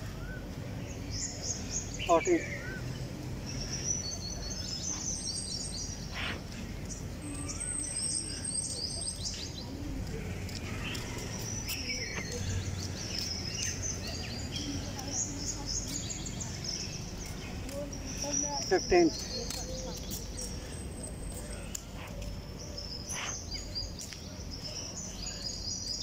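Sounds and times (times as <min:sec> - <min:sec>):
birds chirping and trilling: 0:00.0 - 0:26.0.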